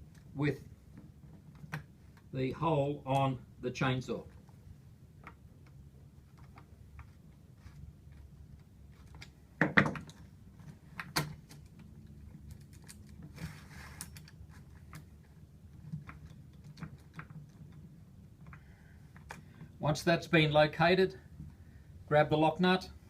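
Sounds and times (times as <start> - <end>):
short scrape: 13.4 - 14.1.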